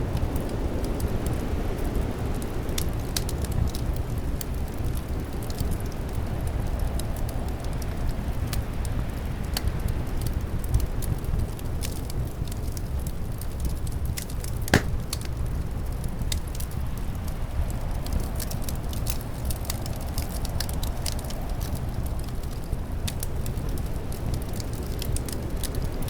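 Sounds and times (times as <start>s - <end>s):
wood fire crackling: 8.0s - 25.9s.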